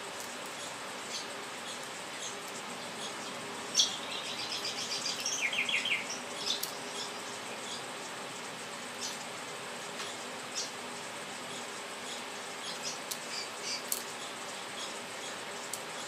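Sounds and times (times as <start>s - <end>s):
bird twittering: 0.6s - 7.9s.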